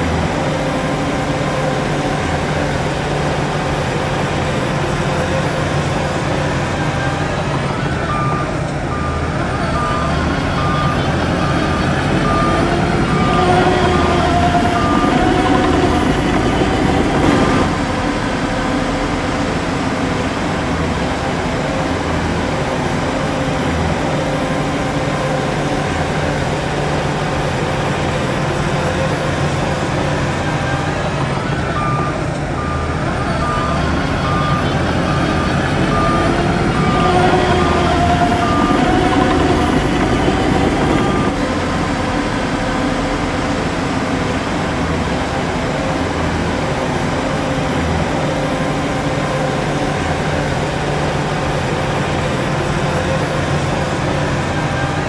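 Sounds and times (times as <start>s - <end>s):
reversing alarm beeping: 0.0s - 43.3s
heavy diesel machinery running: 0.0s - 55.0s.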